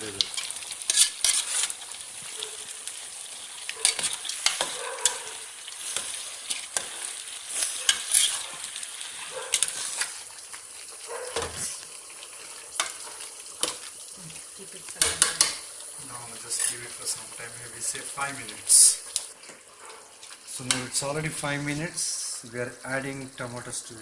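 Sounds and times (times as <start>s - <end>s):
chicken sizzling in oil: 0.0s - 24.0s
spoon scraping pot: 0.4s - 1.8s, 3.8s - 8.6s.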